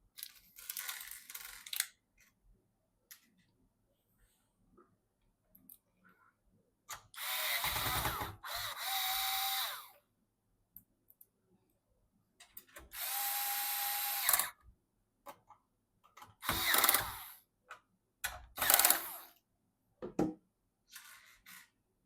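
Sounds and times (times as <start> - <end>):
small parts clicking: 0.2 - 2.3
electric screwdriver whining: 7.2 - 9.9, 12.9 - 14.6, 16.4 - 17.4, 18.6 - 19.3.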